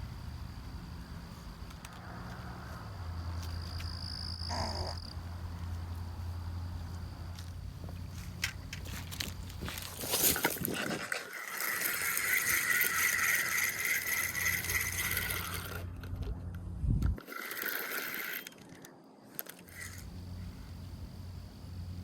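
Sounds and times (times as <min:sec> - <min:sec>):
fishing reel whirring: 0:10.3 - 0:16.1, 0:17.2 - 0:18.8, 0:19.4 - 0:20.1.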